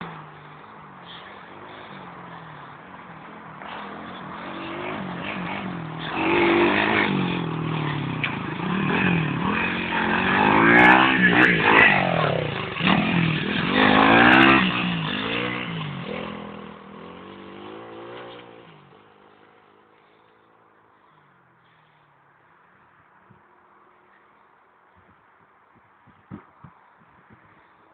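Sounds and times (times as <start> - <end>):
motorbike engine revving: 0.0 - 20.2.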